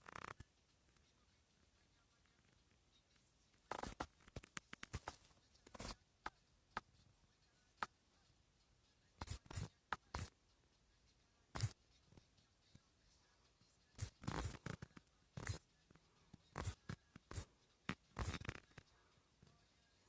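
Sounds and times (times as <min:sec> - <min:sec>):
scratchy clicks and rustles: 0:03.6 - 0:06.0.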